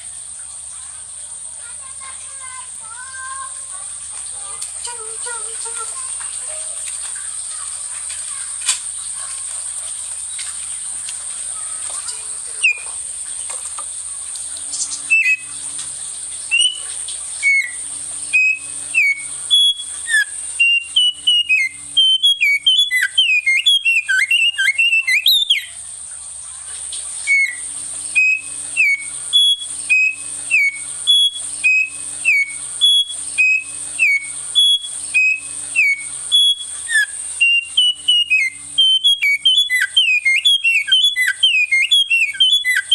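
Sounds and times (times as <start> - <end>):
constant high hiss: 0.0 - 42.9
songbird chirping and whistling: 12.0 - 13.0, 14.6 - 25.8, 27.2 - 42.9.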